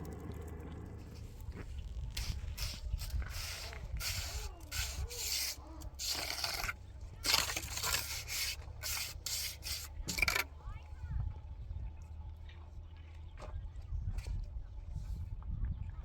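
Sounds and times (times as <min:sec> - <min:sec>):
rough scraping strokes: 0:00.0 - 0:10.4.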